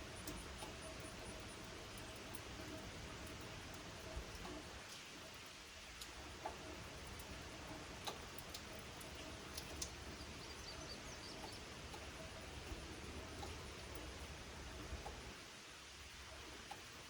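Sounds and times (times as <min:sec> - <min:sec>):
light rain hiss: 0:00.0 - 0:17.0
water drips ticking: 0:00.0 - 0:17.0.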